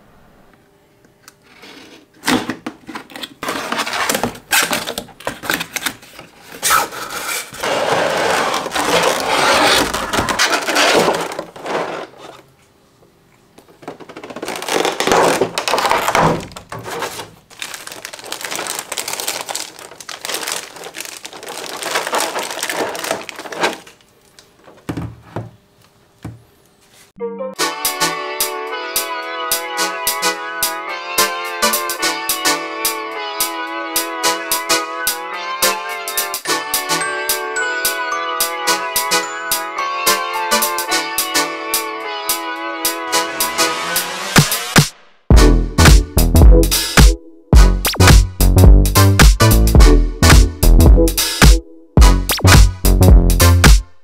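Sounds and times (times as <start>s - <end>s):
plastic and cardboard crinkling: 1.5s - 12.6s, 13.6s - 25.5s.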